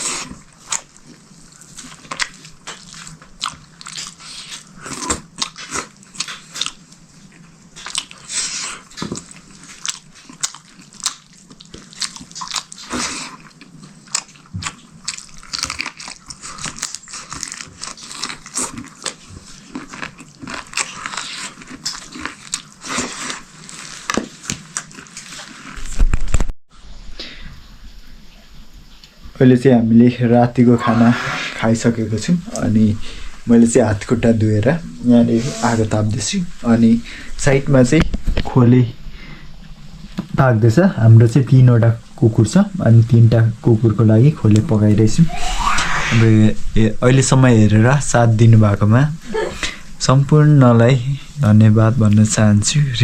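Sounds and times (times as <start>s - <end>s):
person chewing and crunching food: 0.0s - 26.4s.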